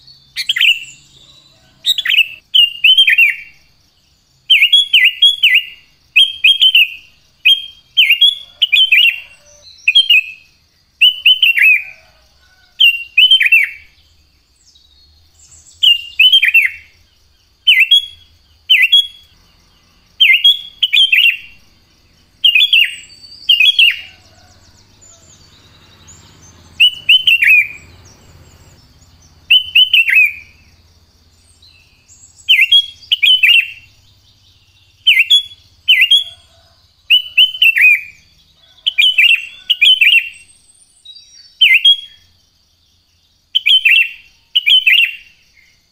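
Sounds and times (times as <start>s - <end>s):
bird singing whistled notes: 0.0s - 45.9s.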